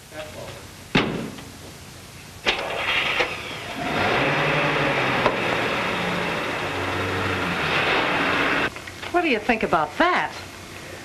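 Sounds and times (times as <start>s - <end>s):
car engine running: 3.7s - 8.7s.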